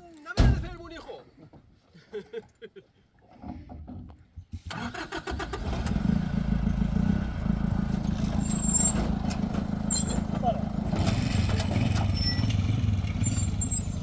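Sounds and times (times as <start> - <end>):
engine starter cranking: 4.7 - 6.1
engine running: 5.1 - 14.0.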